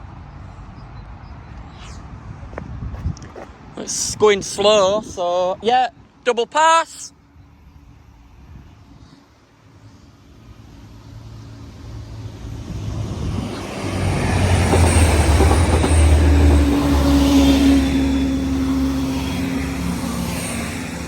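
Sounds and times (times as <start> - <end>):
diesel train engine hum: 7.1 - 21.0
train wheel noise: 11.2 - 21.0.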